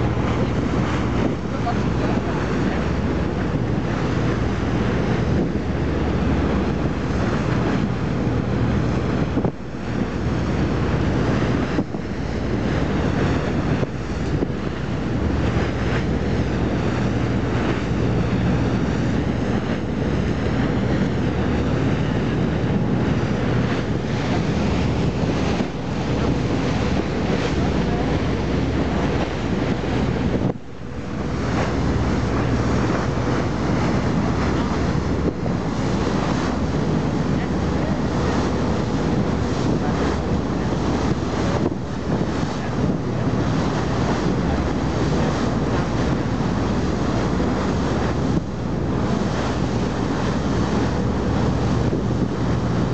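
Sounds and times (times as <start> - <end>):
boat engine running: 0.0 - 52.9
sea wash around hull: 0.0 - 52.9
wind noise on microphone: 0.0 - 52.9.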